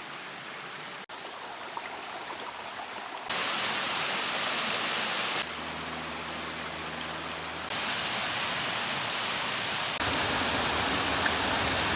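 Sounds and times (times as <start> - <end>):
waterfall rushing: 3.3 - 11.9.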